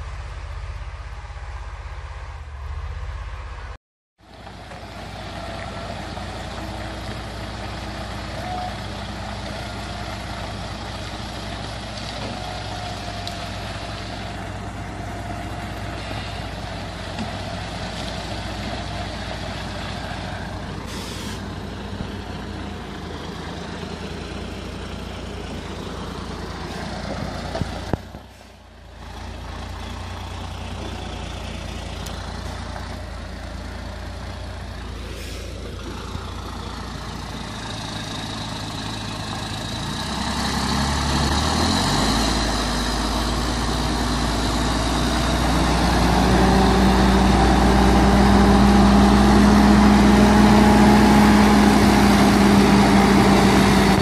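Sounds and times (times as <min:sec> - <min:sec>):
diesel truck engine running: 0:00.0 - 0:54.0
air hiss: 0:20.9 - 0:21.5.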